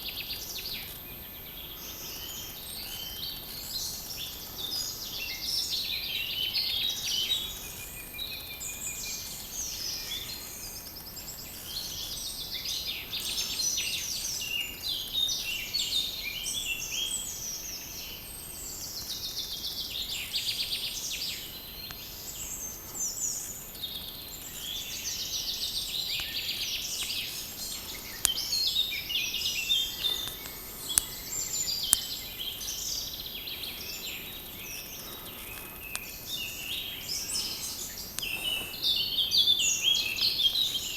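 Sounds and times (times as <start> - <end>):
songbirds chorus: 0.0 - 40.9.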